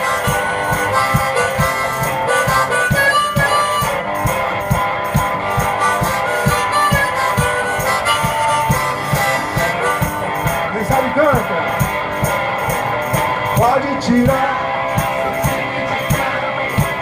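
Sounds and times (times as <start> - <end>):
harmonica melody: 0.0 - 13.6
bass drum beat: 0.0 - 17.0
strummed guitar: 0.0 - 17.0.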